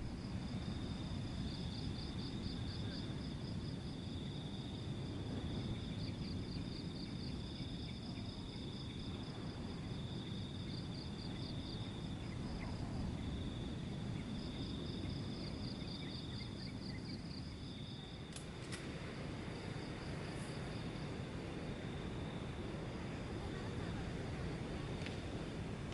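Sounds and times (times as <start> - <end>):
low steady rumble: 0.0 - 4.0
insects trilling: 0.0 - 25.9.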